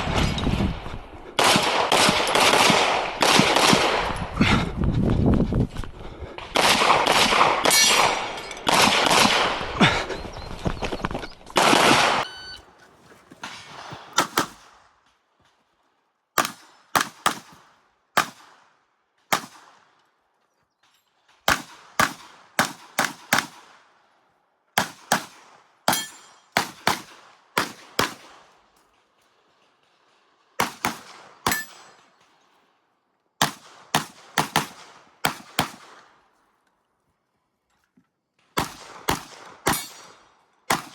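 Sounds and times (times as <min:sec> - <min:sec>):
pistol shots: 0:01.4 - 0:04.2, 0:06.5 - 0:09.7, 0:21.5 - 0:23.7, 0:30.6 - 0:31.9, 0:33.4 - 0:36.1, 0:38.6 - 0:40.9.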